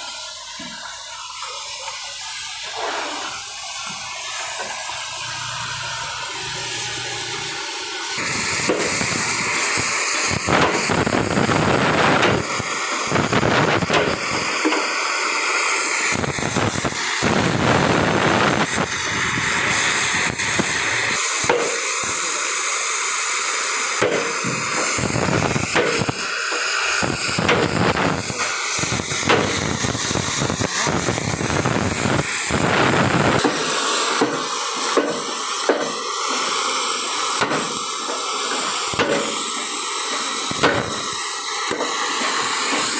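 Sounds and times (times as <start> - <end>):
loud steady hissing: 0.0 - 42.9.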